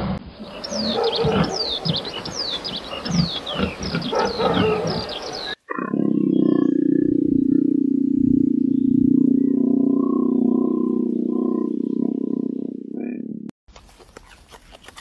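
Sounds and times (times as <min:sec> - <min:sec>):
rough low animal noise: 0:00.0 - 0:15.0
many birds chirping: 0:00.4 - 0:07.8
steady low hum: 0:06.1 - 0:13.0.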